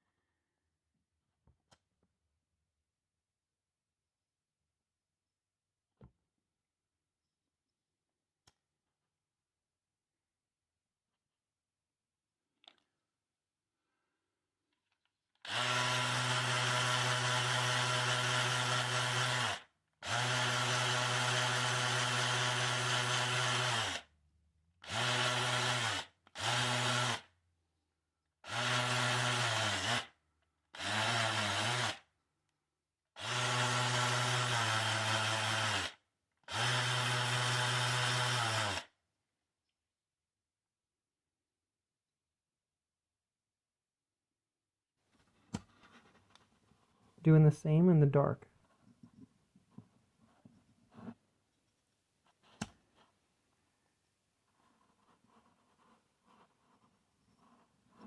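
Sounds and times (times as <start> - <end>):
power tool motor whine: 15.4 - 24.1, 24.8 - 27.3, 28.4 - 30.2, 30.8 - 32.1, 33.2 - 38.9.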